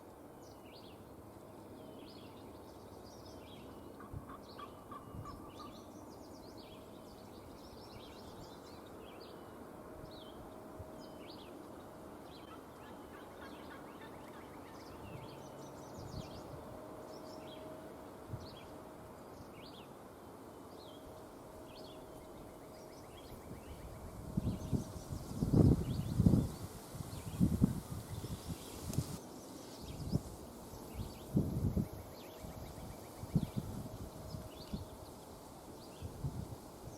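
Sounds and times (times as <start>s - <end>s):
steady background hiss: 0.0s - 36.9s.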